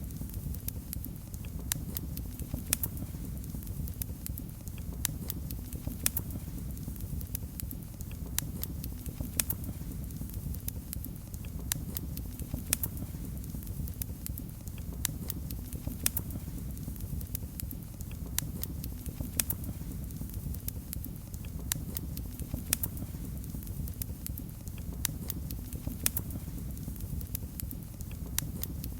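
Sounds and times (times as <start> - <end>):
wood fire crackling: 0.0 - 28.9.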